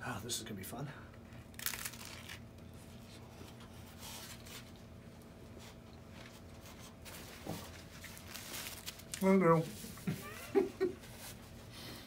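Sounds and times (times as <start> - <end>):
low room hum: 0.0 - 12.0
crunching taco being chewed: 1.4 - 2.4.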